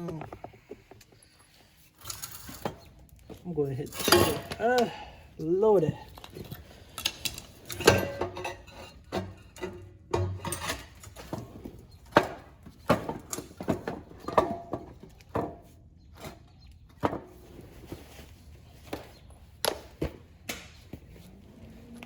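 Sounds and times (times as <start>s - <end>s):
metal pipe knocking and clanking: 7.7s - 11.4s.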